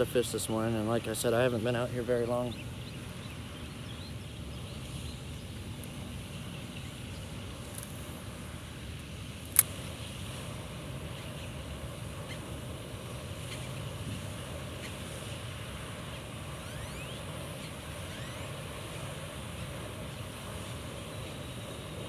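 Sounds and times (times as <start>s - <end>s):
sharp click: 9.5s - 9.8s.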